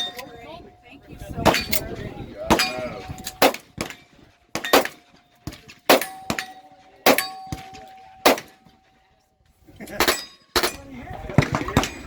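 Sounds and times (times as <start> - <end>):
steel targets clanging: 0.0 - 9.2, 9.8 - 12.0
steady ringing: 0.0 - 9.4, 10.0 - 11.0
gunshots: 2.5 - 8.7.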